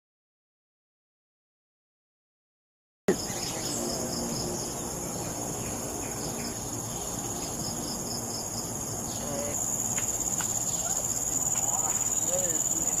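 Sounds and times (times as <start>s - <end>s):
insects shrilling: 3.1s - 13.0s.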